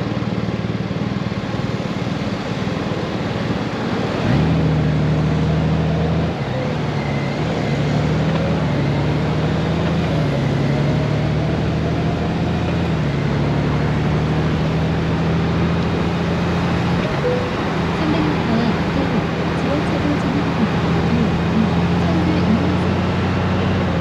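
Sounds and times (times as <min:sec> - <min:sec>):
wind and road noise: 0:00.0 - 0:24.0
motorcycle engine running: 0:08.2 - 0:24.0.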